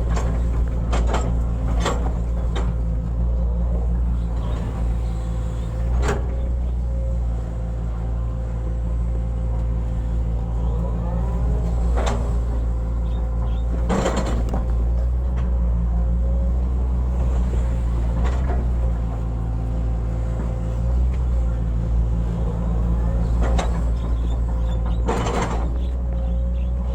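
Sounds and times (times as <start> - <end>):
excavator diesel engine running: 0.0 - 26.9.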